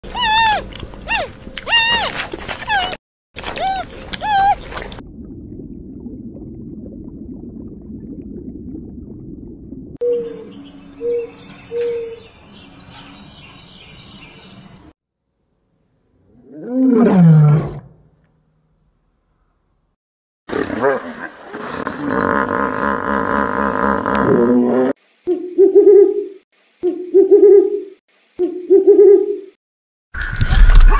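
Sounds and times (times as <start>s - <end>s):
cat meowing: 0.1s - 3.0s, 3.6s - 4.6s
low rumbling: 2.7s - 11.0s
loud animal roar: 16.3s - 17.9s.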